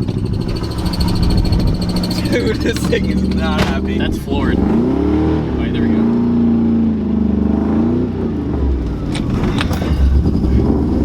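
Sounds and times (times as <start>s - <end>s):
sharp engine clicks: 0.0s - 4.8s
car engine under heavy throttle: 0.0s - 11.0s.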